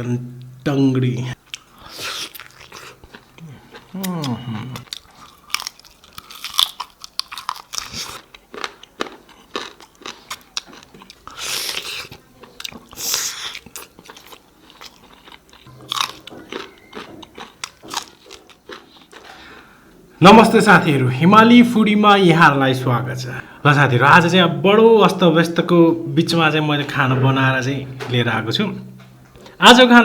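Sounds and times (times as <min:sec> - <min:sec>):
person chewing crunchy food: 0:01.4 - 0:19.8.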